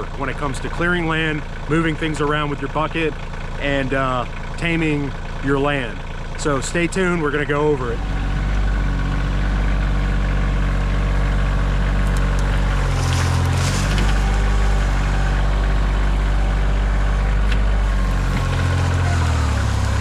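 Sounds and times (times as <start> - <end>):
diesel tractor engine running: 0.0 - 20.0
short crackle: 12.1 - 15.0.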